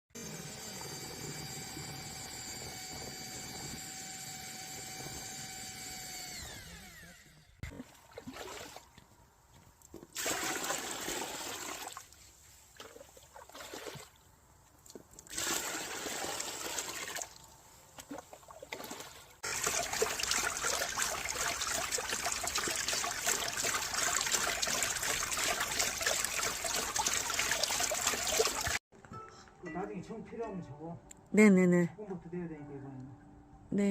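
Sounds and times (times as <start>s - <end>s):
machine whine: 0.2s - 7.6s
water running and splashing: 10.1s - 14.2s, 15.0s - 28.8s.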